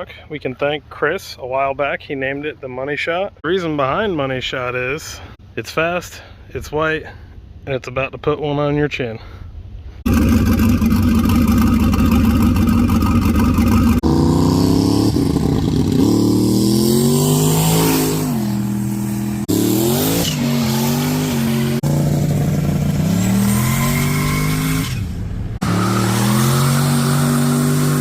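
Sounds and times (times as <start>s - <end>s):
truck engine accelerating hard: 10.1s - 28.0s.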